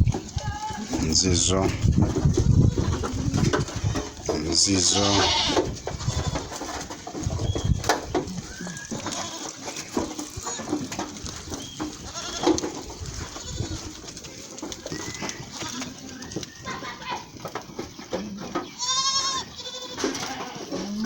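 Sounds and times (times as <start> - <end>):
knocks and rustles: 0.0 - 21.0
goats bleating: 0.4 - 6.7, 8.3 - 11.0, 11.9 - 17.3, 18.6 - 21.0.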